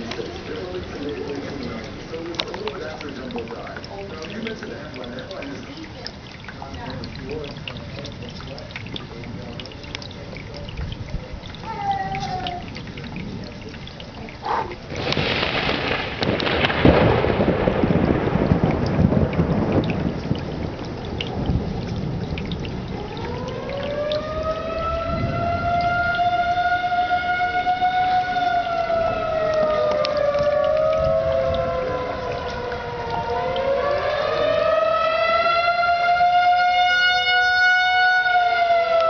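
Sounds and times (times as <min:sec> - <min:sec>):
steady rain: 0:00.0 - 0:39.0
thunderclap rumbling: 0:14.4 - 0:36.7
warning siren wailing: 0:15.0 - 0:19.7, 0:21.2 - 0:39.0.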